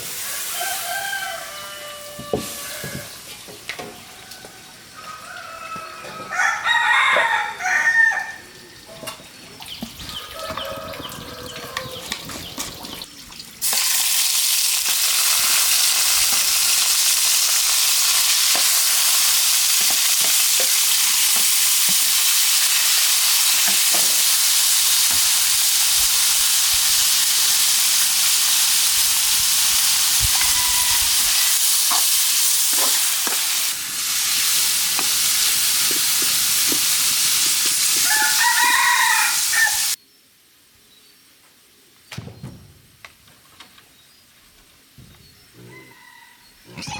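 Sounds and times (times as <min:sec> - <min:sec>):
rooster crowing: 0:00.2 - 0:03.2, 0:04.1 - 0:08.6, 0:10.2 - 0:12.2, 0:30.2 - 0:31.6, 0:38.0 - 0:40.0, 0:45.7 - 0:46.9
food sizzling in hot oil: 0:13.6 - 0:40.0.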